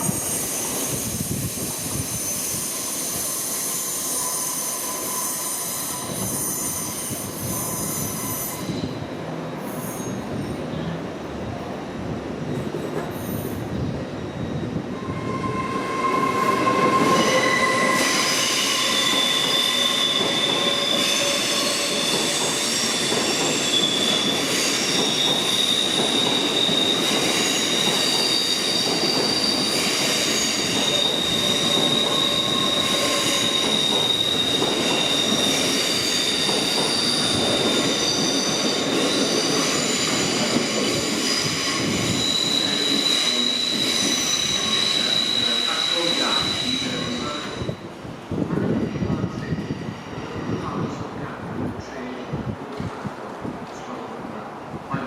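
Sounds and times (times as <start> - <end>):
train wheels squealing on rails: 0.0 - 11.2, 12.4 - 51.4
train wheels rumbling: 12.0 - 51.8.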